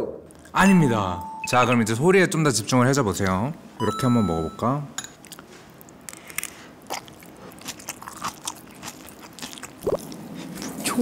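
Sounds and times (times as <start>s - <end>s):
crunchy chewing: 5.2s - 10.9s.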